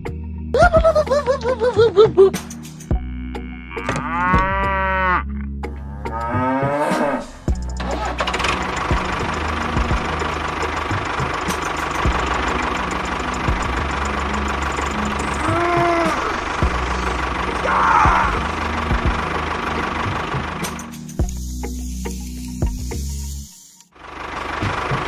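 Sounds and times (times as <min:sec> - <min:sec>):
cow mooing: 0:03.1 - 0:07.4, 0:15.4 - 0:16.4
engine running: 0:05.6 - 0:25.0.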